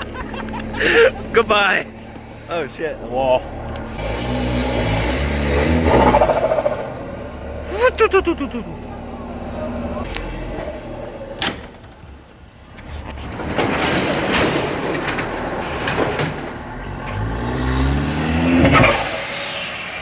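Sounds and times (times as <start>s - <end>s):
engine revving: 0.0s - 11.7s, 15.8s - 20.0s
car driving: 0.0s - 20.0s.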